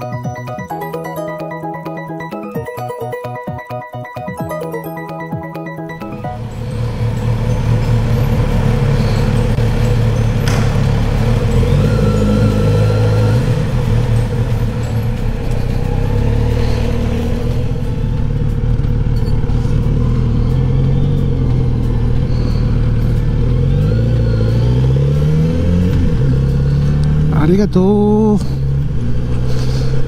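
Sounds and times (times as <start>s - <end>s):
motorcycle engine revving: 6.2s - 30.0s.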